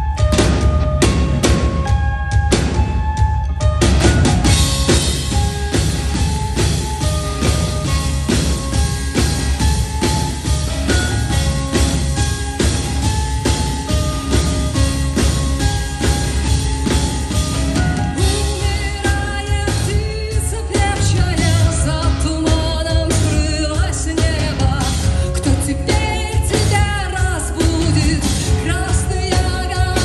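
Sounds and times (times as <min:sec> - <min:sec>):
bass guitar: 0:00.0 - 0:30.0
drums: 0:00.0 - 0:30.0
woman singing rock song: 0:17.5 - 0:30.0.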